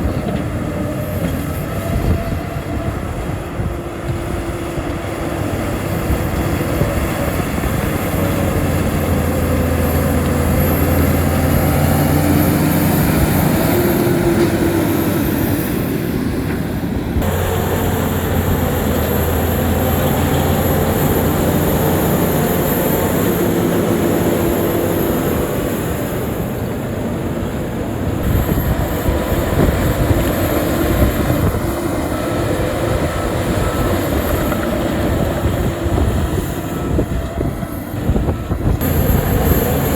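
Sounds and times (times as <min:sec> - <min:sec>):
bulldozer diesel engine running: 0:00.0 - 0:39.9
track clatter: 0:00.0 - 0:39.9
thin high whine: 0:38.8 - 0:39.9.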